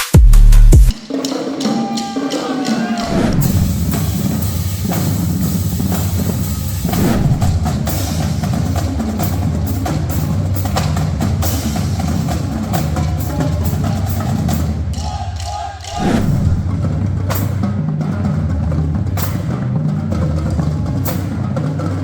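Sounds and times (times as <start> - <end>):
low bass: 0.0 - 0.9, 6.8 - 8.0, 16.0 - 17.0
percussion music: 0.0 - 22.0.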